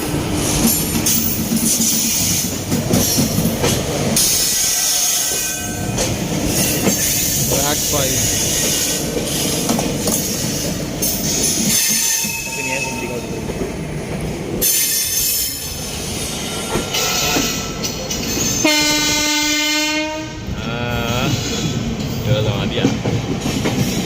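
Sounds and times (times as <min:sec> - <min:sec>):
train wheels rolling on rails: 0:00.0 - 0:24.0
locomotive horn: 0:18.6 - 0:21.4.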